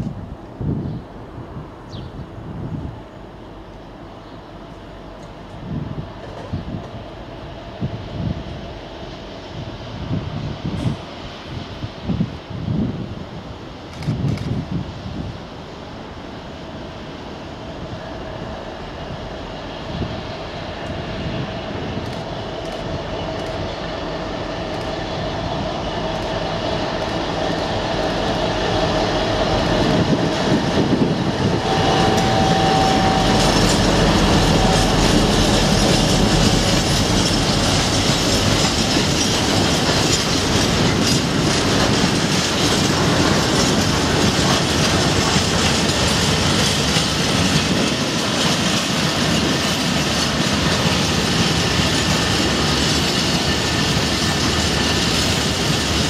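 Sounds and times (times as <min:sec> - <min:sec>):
diesel locomotive passing: 0:00.0 - 0:56.0
wagon wheels clicking over rail joints: 0:33.3 - 0:56.0.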